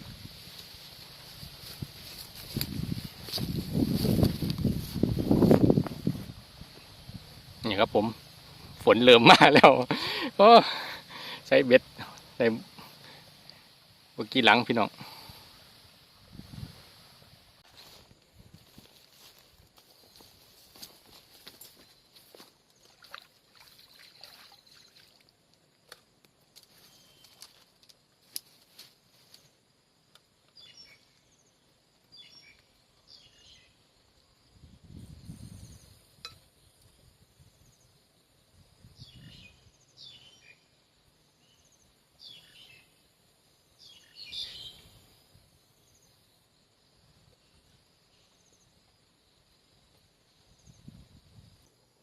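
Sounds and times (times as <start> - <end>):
bird chirping: 26.7 - 27.5, 30.5 - 33.8, 39.0 - 40.7, 41.4 - 43.0, 43.8 - 45.0.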